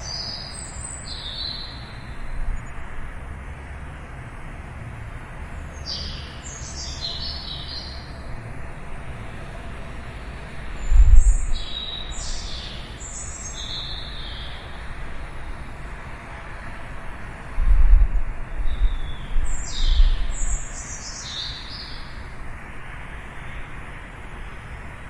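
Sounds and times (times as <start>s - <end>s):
small birds chirping: 0.0s - 2.9s, 5.6s - 8.3s, 10.7s - 16.0s, 18.6s - 22.4s
steady low rumble: 8.3s - 12.5s, 14.7s - 20.7s.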